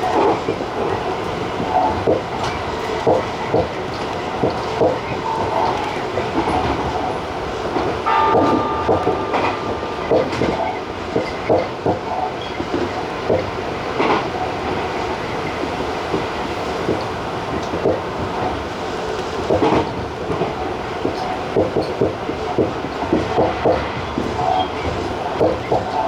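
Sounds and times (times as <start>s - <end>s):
train wheels clacking: 0.0s - 26.0s
steady tone: 8.0s - 12.4s.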